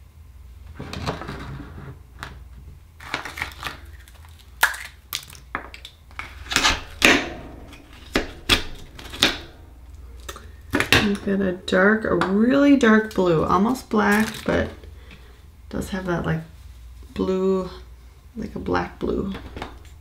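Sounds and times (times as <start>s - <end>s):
oyster shells clicking and cracking: 3.0s - 7.2s.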